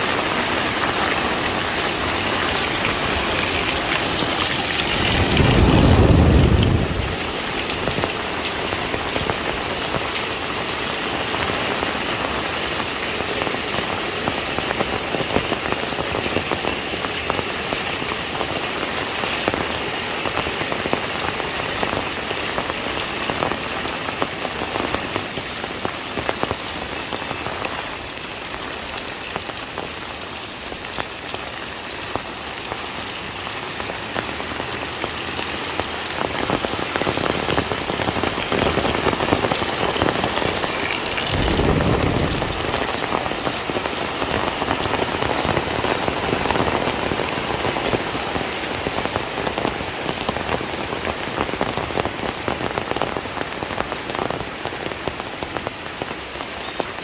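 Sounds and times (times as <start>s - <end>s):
heavy rain falling: 0.0s - 57.0s
deep rush of sound: 40.9s - 43.7s.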